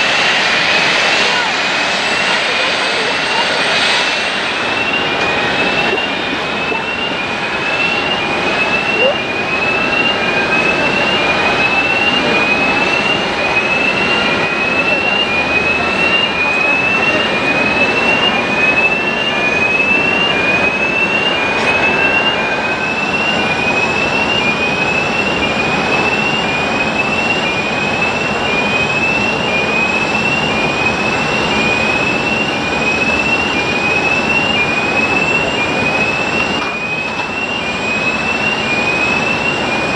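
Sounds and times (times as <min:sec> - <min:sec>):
high rising chirp: 0:00.0 - 0:07.1
jet engines rushing: 0:00.0 - 0:39.9.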